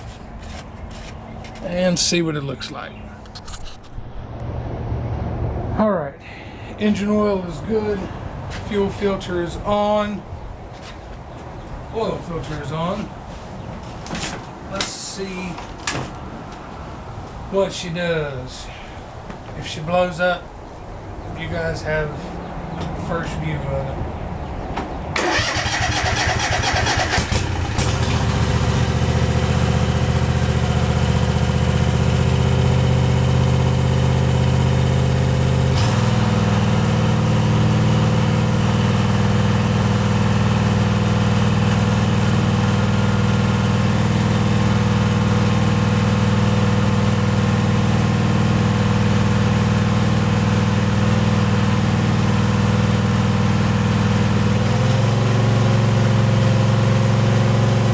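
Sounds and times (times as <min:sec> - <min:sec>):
engine starter cranking: 0:25.2 - 0:28.2
mower engine running: 0:25.2 - 0:57.9.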